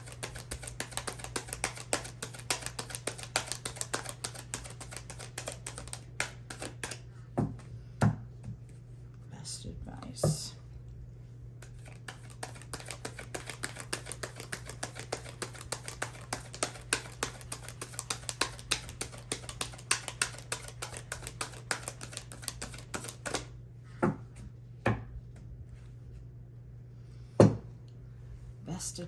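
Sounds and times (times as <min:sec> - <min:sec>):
cards being shuffled: 0:00.0 - 0:07.1, 0:11.6 - 0:23.5.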